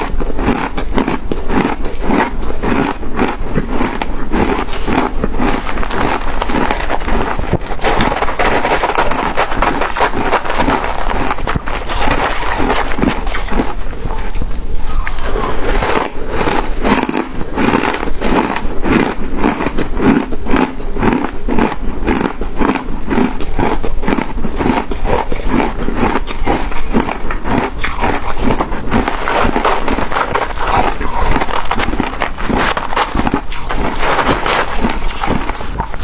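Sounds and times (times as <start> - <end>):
person crunching ice: 0.0 - 14.4, 15.2 - 36.0.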